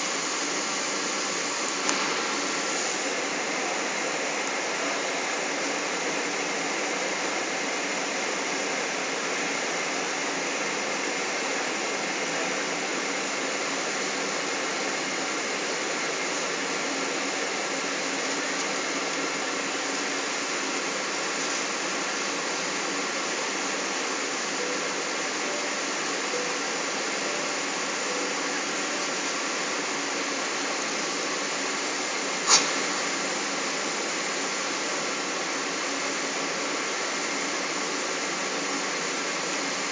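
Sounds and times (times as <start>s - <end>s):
airliner cabin noise in flight: 0.0s - 39.9s
sharp click: 1.8s - 2.2s, 32.5s - 32.8s.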